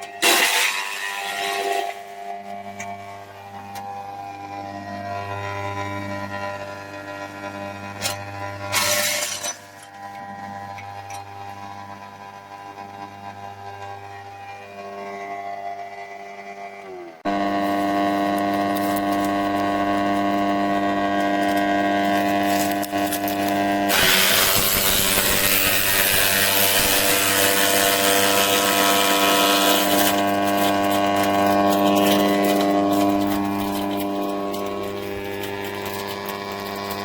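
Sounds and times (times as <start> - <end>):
wood chipper motor humming: 0.0 - 37.0
wood being chipped grinding: 17.2 - 37.0.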